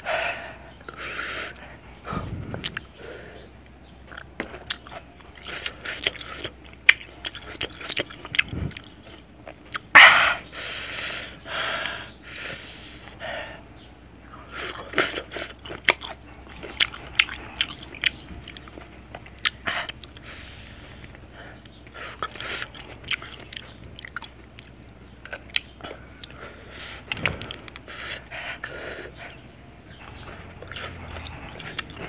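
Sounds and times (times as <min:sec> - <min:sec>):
loud hissing breaths: 0:00.0 - 0:04.0, 0:10.0 - 0:15.7, 0:16.3 - 0:23.8, 0:25.8 - 0:32.0
crunching and chewing: 0:00.0 - 0:32.0
mouth sounds: 0:00.0 - 0:32.0.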